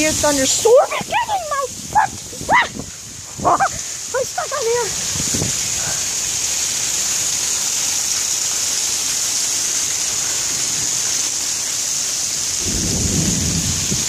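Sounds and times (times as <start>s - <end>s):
heavy rain pouring: 0.0s - 14.0s
low rumble of thunder: 12.6s - 14.0s.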